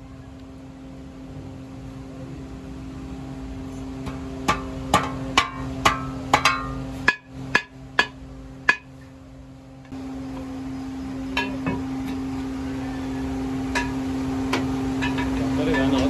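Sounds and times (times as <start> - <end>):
steady machine hum: 0.0 - 16.0
hammer striking metal: 4.0 - 9.1, 11.3 - 12.2, 13.7 - 16.0.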